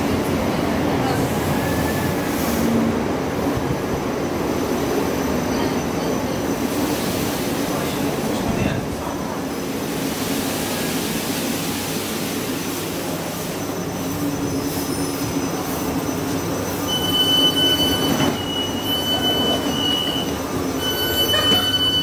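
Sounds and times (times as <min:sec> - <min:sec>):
train wheels rumbling on rail: 0:00.0 - 0:22.0
train brake squeal: 0:13.4 - 0:22.0.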